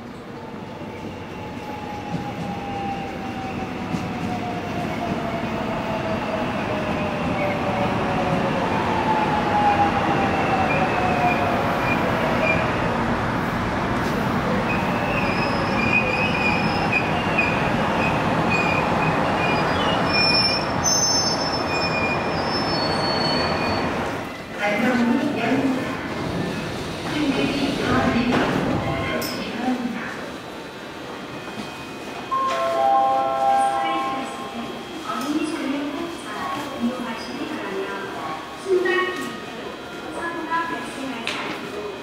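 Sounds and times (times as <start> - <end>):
train rail and running noise: 0.0 - 42.0
high wheel squeal: 19.4 - 23.9.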